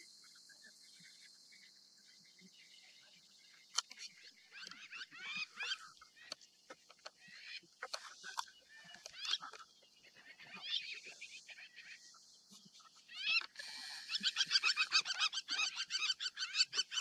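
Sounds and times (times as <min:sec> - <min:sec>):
faint high insect hiss: 0:00.0 - 0:06.7, 0:09.4 - 0:14.7
birds chattering calls: 0:02.3 - 0:17.0.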